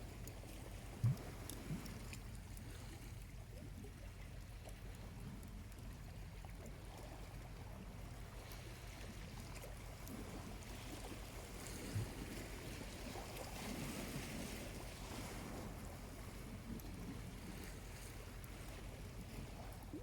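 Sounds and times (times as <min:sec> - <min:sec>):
small waves washing onto beach: 0:00.0 - 0:20.0.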